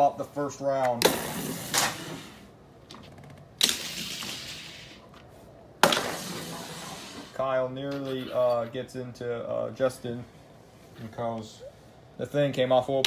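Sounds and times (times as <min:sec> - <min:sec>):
toy cars knocking together: 0:03.6 - 0:05.0, 0:05.8 - 0:06.8.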